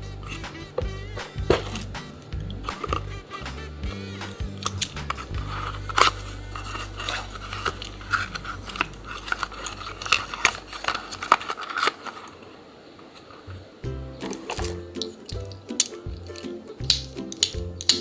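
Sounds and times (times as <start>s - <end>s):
deep steady hum: 0.0s - 11.2s, 13.8s - 16.3s
toy cars and packaging handled: 0.0s - 18.0s
sharper knocks: 1.2s - 3.0s.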